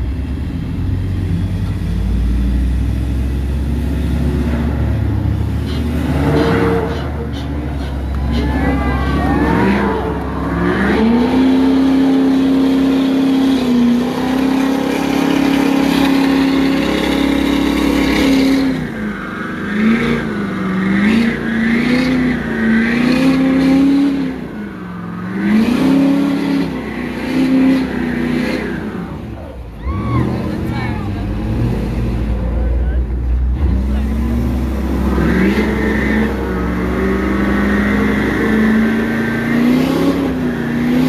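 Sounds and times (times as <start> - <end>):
pickup truck engines revving: 0.0 - 41.0.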